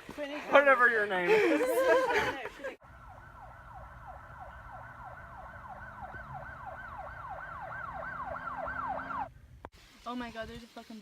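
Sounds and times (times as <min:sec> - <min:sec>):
siren yelping: 0:02.8 - 0:09.3.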